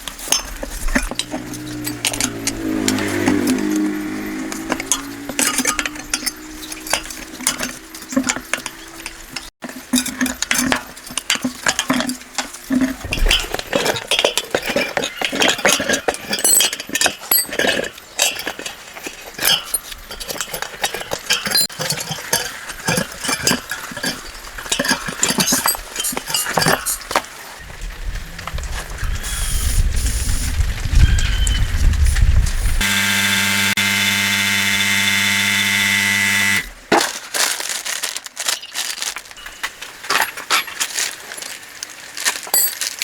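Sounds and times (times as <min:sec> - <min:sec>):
metal tools clinking and knocking: 0:00.0 - 0:27.4, 0:38.5 - 0:41.6, 0:42.4 - 0:43.0
humming machine tone: 0:01.1 - 0:09.5, 0:32.8 - 0:36.7.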